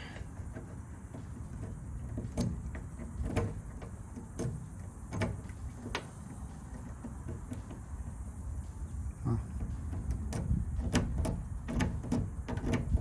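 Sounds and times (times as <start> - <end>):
key clicking in door lock: 9.9 - 13.0.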